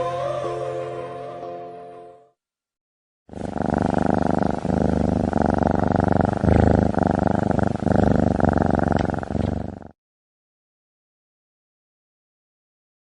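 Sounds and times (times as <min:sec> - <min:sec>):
cat purring: 0:03.3 - 0:10.0.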